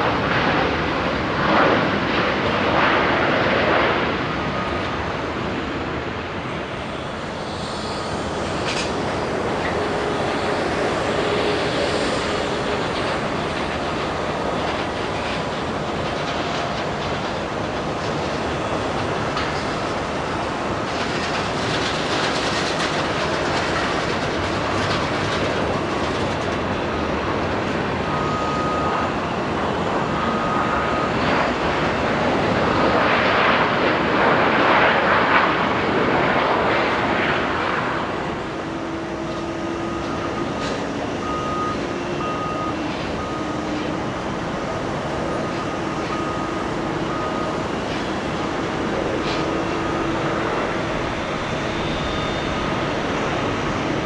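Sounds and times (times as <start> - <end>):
jet engines rushing: 0.0 - 54.0
faint whining tones: 4.5 - 26.3, 38.0 - 54.0.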